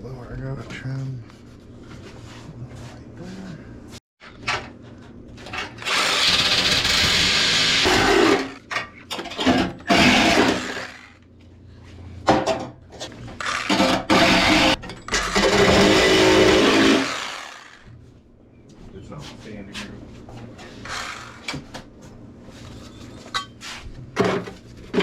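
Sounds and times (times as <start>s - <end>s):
power tool cutting sheet steel: 5.8s - 8.6s, 9.9s - 11.2s, 13.4s - 17.8s, 20.8s - 21.6s.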